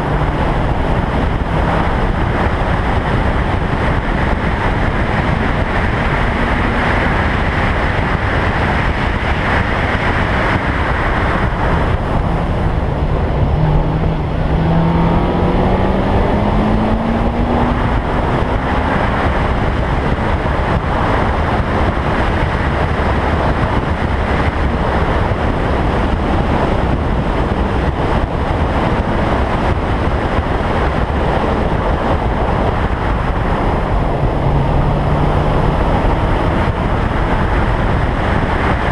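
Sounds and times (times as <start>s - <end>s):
car engine accelerating: 0.0s - 38.9s
wind noise on microphone: 0.0s - 38.9s.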